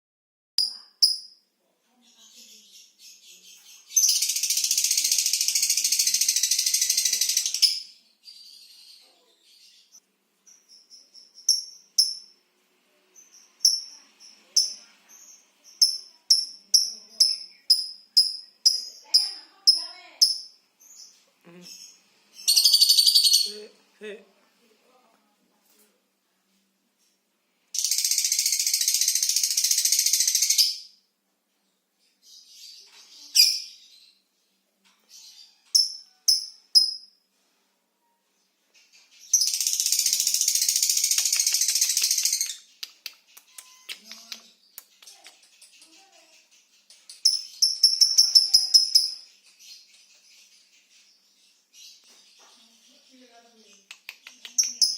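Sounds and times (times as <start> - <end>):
lovebird shrill chirps: 0.6 - 1.5, 3.8 - 8.9, 10.5 - 12.4, 13.2 - 21.1, 21.7 - 23.7, 27.8 - 31.0, 35.2 - 37.2, 39.2 - 46.4, 47.1 - 49.9.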